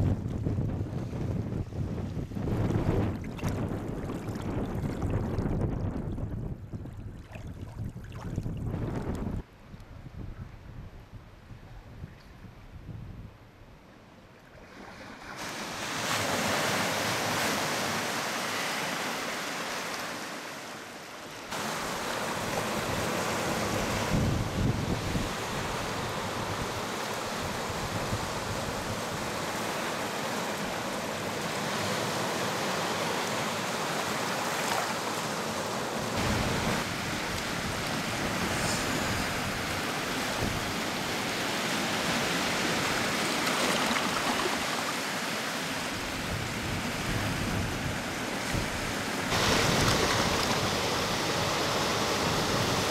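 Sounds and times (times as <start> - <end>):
strong wind blowing: 0.0 - 13.4, 22.4 - 29.5, 36.2 - 41.0, 46.0 - 52.9.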